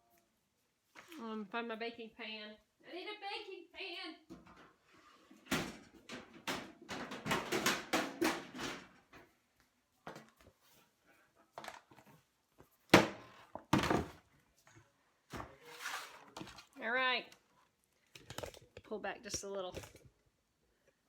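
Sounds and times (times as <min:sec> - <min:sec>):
metal pans clattering: 0:05.3 - 0:09.2.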